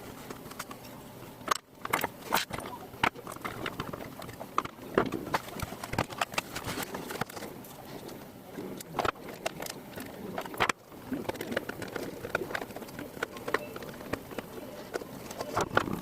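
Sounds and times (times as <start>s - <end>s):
clicks of plastic and metal parts: 0.2s - 16.0s.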